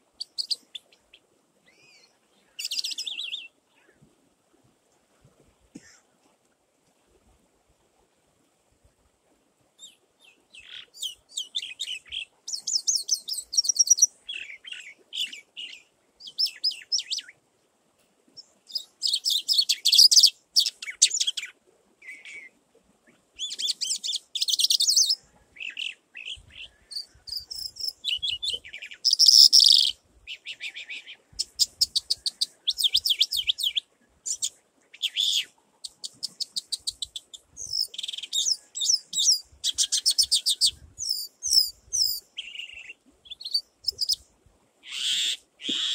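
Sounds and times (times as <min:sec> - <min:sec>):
small birds chirping: 0:00.2 - 0:03.9, 0:09.8 - 0:17.3, 0:18.4 - 0:22.5, 0:23.1 - 0:44.2.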